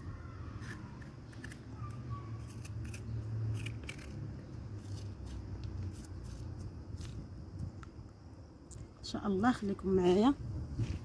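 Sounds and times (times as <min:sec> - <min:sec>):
steady low rumble: 0:03.5 - 0:11.0.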